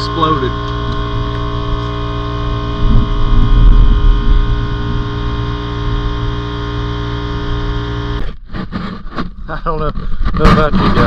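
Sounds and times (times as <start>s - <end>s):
low rumble: 0.0s - 8.2s
electrical hum: 0.0s - 11.0s.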